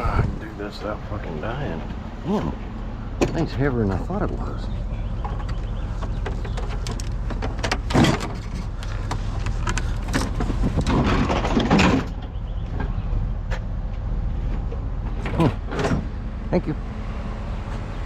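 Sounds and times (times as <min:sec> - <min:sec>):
steady low hum: 0:00.0 - 0:18.0
scrap metal knocking and clattering: 0:05.2 - 0:12.3.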